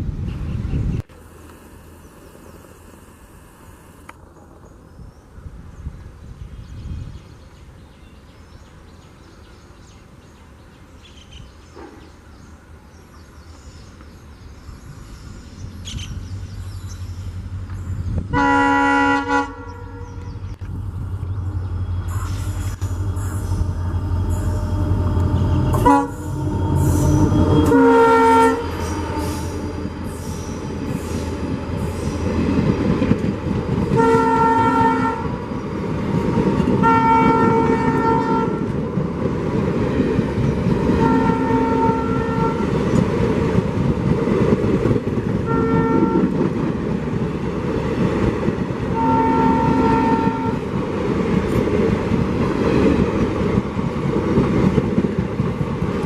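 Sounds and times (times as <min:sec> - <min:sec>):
train rumble and clickety-clack: 0:13.1 - 0:56.0
locomotive horn blasts: 0:18.3 - 0:20.3, 0:22.1 - 0:31.1, 0:33.9 - 0:35.4, 0:36.8 - 0:38.7, 0:40.9 - 0:42.8, 0:45.4 - 0:46.4, 0:48.9 - 0:50.7.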